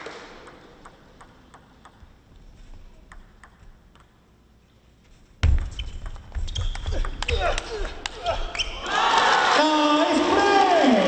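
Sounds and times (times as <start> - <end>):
table tennis ball clicking: 0.4 - 2.1, 3.1 - 4.2.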